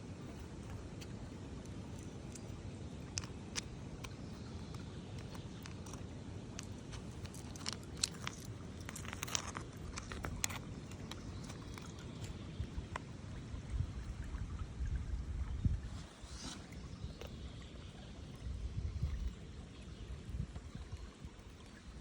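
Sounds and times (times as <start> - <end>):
stones and gravel clicking: 1.0 - 13.1.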